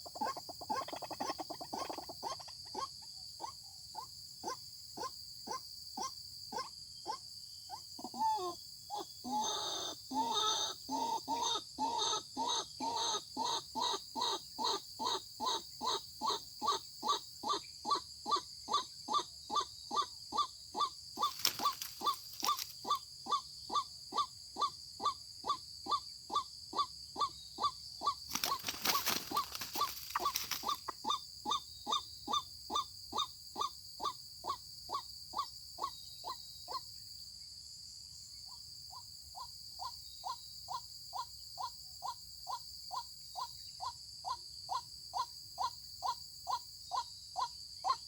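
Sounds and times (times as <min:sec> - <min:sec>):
waterhen calling: 0:28.3 - 0:31.2.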